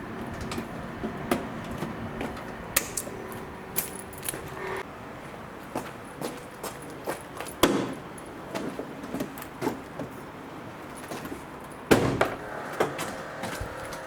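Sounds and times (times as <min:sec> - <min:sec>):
gear clinking and knocking: 0:00.0 - 0:04.8.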